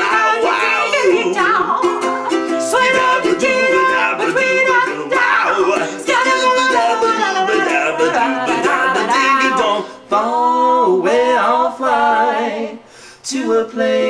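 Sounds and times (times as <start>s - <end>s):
strummed ukulele: 0.0s - 10.1s
man and woman singing: 0.0s - 14.0s.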